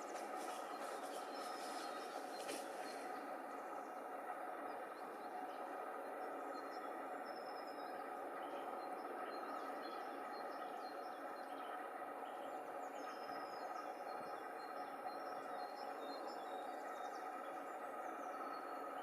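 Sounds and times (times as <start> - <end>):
rushing background noise: 0.0 - 7.1
small birds chirping: 0.0 - 18.8.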